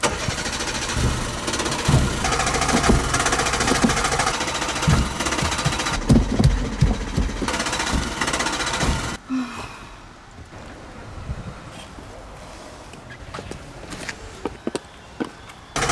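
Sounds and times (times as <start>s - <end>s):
car engine cranking and sputtering: 0.0s - 9.2s.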